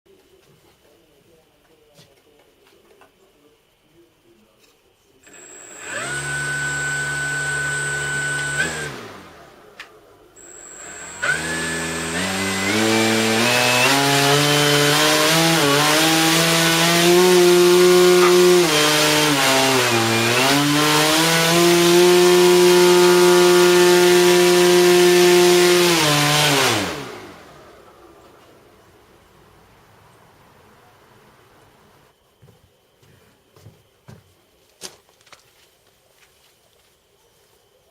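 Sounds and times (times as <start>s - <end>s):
electric motor spinning propeller: 5.3s - 9.8s, 10.4s - 27.8s.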